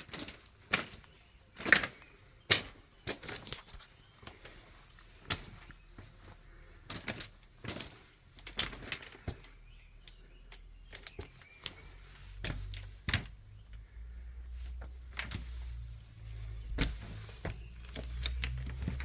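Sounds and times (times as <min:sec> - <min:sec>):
irregular clicks and knocks: 0:14.8 - 0:19.0.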